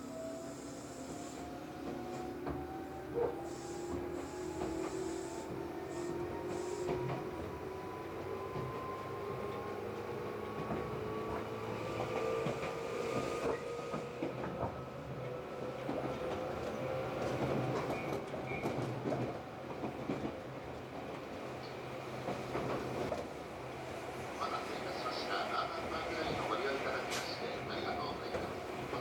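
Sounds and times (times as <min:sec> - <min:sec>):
train traction motor whine: 0:00.0 - 0:18.6
train running noise: 0:00.0 - 0:29.0.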